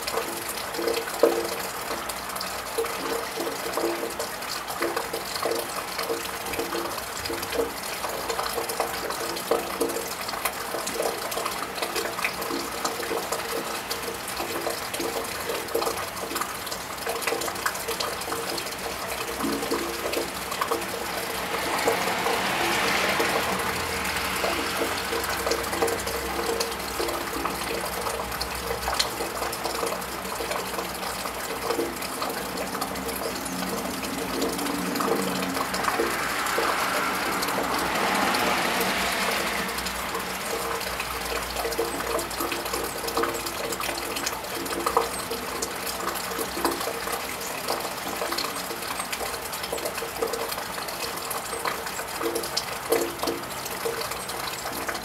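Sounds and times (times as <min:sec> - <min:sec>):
rain pattering and dripping: 0:00.0 - 0:55.0
water trickling: 0:00.0 - 0:55.0
car tyres hissing on wet road: 0:20.4 - 0:27.4, 0:32.8 - 0:41.5.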